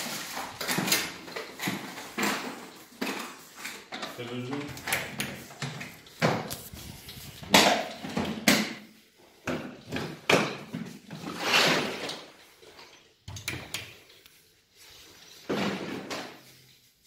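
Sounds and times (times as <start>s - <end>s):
drawers sliding: 9.7s - 12.5s.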